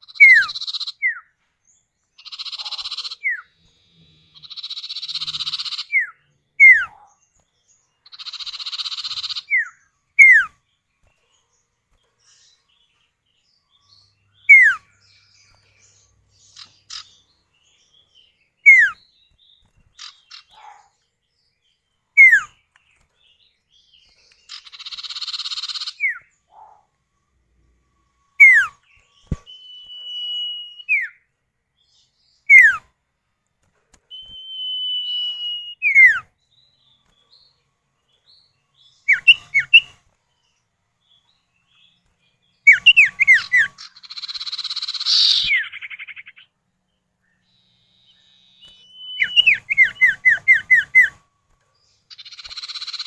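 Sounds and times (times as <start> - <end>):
buzzy rasping bird chatter: 0.0 - 1.0, 2.1 - 6.1, 6.8 - 18.3, 18.9 - 21.0, 22.3 - 26.8, 41.1 - 46.5, 51.8 - 53.0
bird whistles: 0.1 - 1.3, 2.2 - 3.5, 4.4 - 7.0, 8.2 - 10.6, 14.4 - 14.9, 18.6 - 19.0, 22.2 - 22.5, 28.4 - 31.2, 32.5 - 32.9, 34.1 - 36.3, 39.1 - 39.9, 42.6 - 46.4, 47.6 - 51.2, 52.1 - 53.0.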